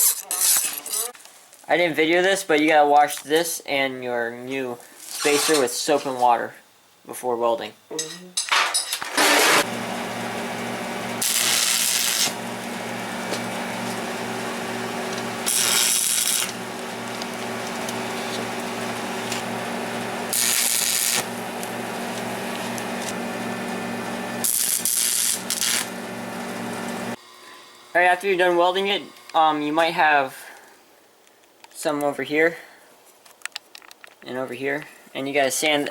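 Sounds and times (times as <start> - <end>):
welding arc hiss: 9.2 - 27.6
welder humming: 9.2 - 29.9.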